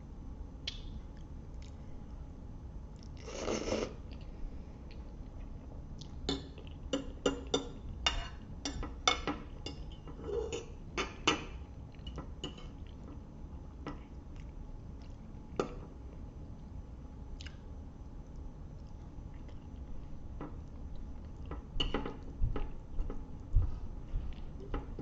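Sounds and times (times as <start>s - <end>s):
wet chewing and mouth smacks: 17.4s - 17.6s.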